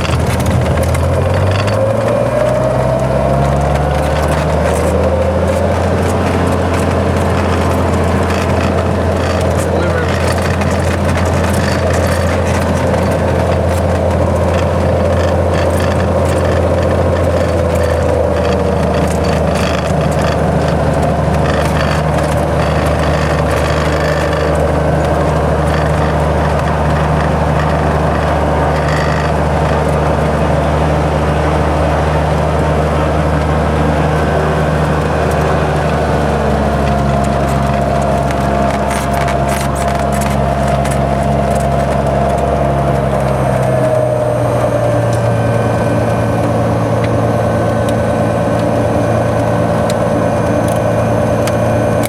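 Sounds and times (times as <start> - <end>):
propeller plane engine in cabin: 0.0 - 52.0.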